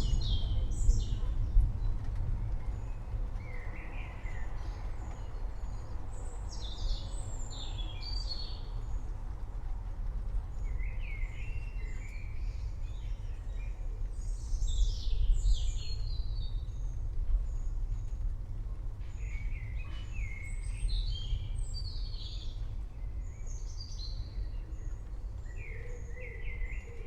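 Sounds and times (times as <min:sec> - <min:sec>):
thunder rumble: 0:00.0 - 0:05.8
songbirds singing: 0:00.0 - 0:09.3, 0:10.3 - 0:27.0.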